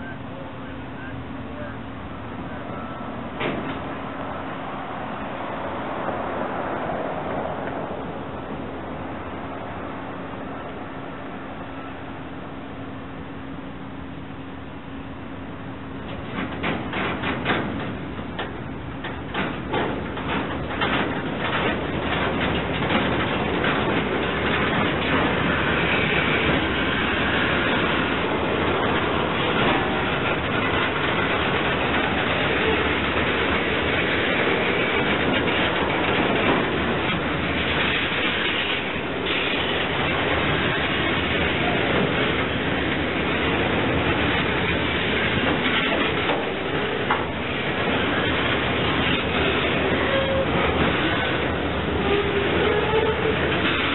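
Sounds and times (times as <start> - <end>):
steel wheels rumbling on rail: 0.0 - 53.9
freight train wheel clicks: 16.0 - 53.9.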